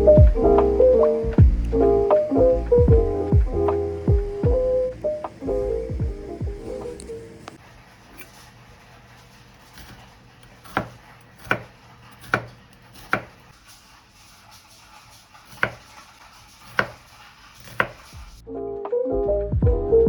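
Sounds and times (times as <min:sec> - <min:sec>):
knife chopping on cutting board: 0:09.6 - 0:13.5, 0:15.5 - 0:18.3.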